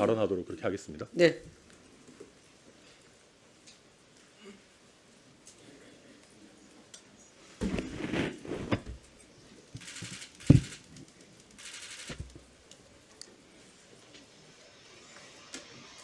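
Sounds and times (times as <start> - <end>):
paper rustling: 7.6 - 9.0.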